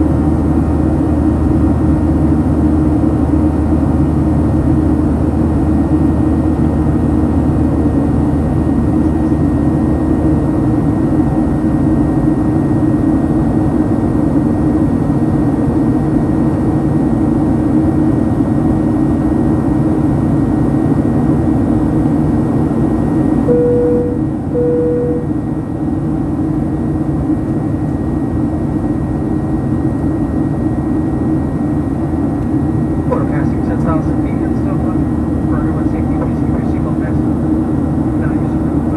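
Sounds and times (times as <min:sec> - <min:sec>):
aircraft engine drone: 0:00.0 - 0:38.9
low hum: 0:22.0 - 0:38.9
single-pitched chime: 0:23.5 - 0:25.3.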